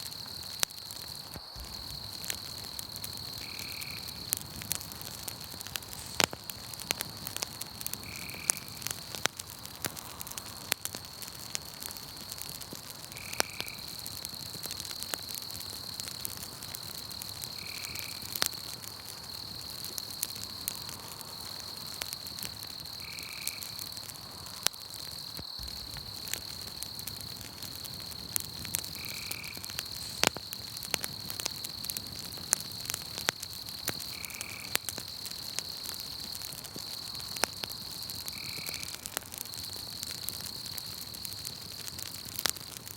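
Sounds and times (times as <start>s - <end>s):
campfire crackling and popping: 0.0s - 42.9s
high-pitched insect trill: 1.4s - 4.3s, 19.3s - 24.5s, 25.1s - 31.8s, 33.5s - 36.2s.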